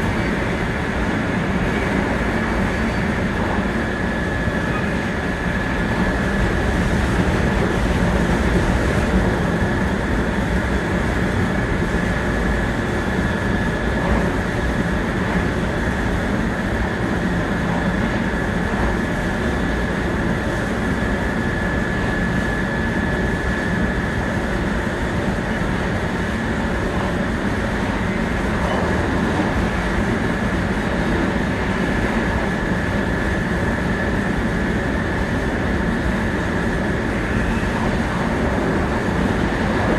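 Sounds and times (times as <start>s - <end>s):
train running noise inside car: 0.0s - 39.9s.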